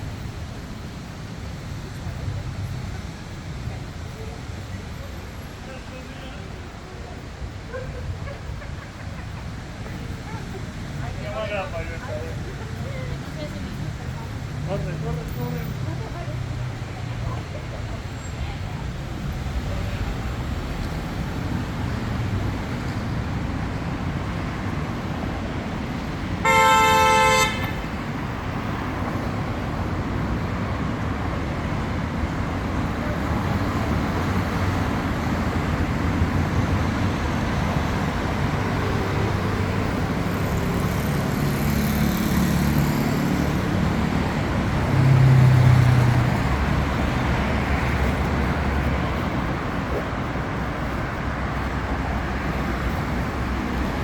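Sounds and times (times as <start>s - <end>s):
traffic rumble: 0.0s - 54.0s
vehicle passing close: 10.1s - 54.0s
car horn: 26.4s - 28.1s.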